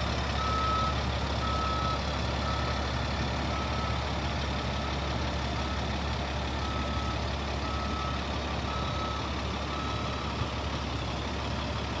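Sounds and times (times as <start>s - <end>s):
diesel truck engine running: 0.0s - 12.0s
reversing alarm beeping: 0.4s - 2.7s.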